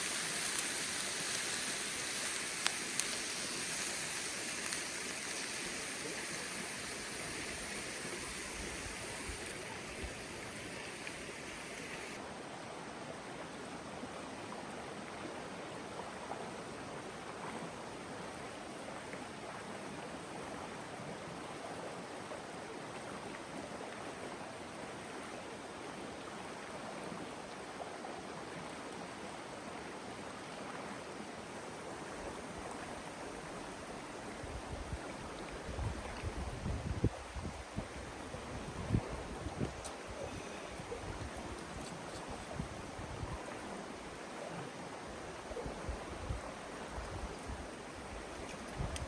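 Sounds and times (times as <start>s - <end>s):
river flowing over rocks: 0.0s - 12.3s.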